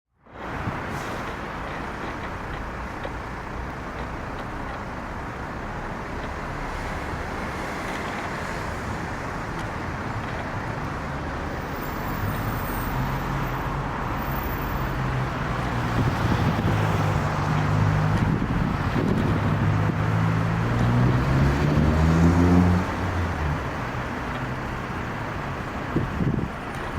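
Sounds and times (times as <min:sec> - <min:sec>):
road and tyre noise: 0:00.1 - 0:26.9
low engine hum: 0:12.6 - 0:26.9.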